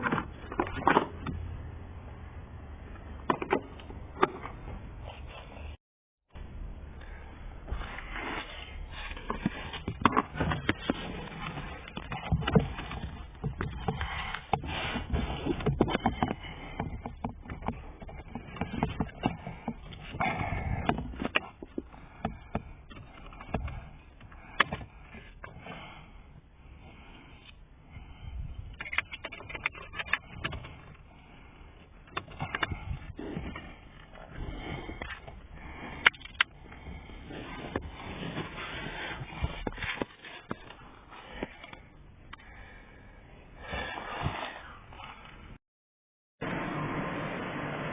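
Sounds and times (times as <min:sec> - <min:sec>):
rustling and handling noise: 0:06.4 - 0:42.4.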